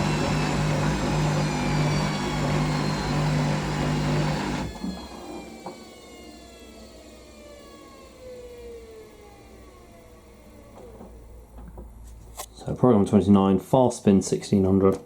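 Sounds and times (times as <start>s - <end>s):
drain pump humming: 0.0s - 6.4s
washing machine motor whine: 0.0s - 11.9s.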